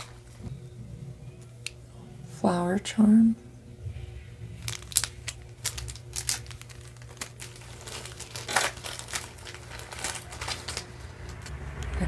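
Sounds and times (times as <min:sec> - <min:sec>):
jewelry crinkling and rustling: 0:04.6 - 0:11.4.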